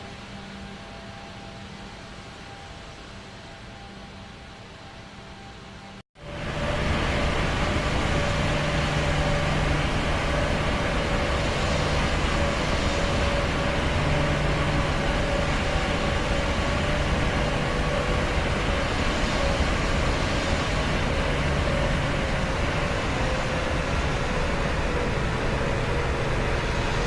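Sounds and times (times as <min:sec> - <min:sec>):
aeroplane cabin engine roar: 0:06.2 - 0:27.0.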